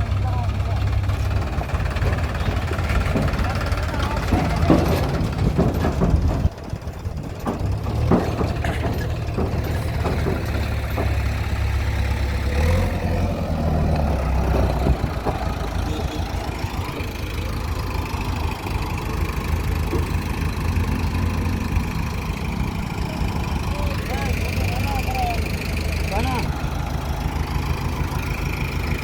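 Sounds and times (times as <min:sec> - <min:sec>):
diesel engine humming: 0:00.0 - 0:29.0.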